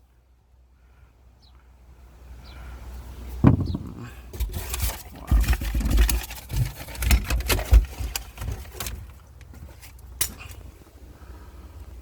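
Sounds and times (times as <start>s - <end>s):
handling knocks and thumps: 3.4s - 10.6s.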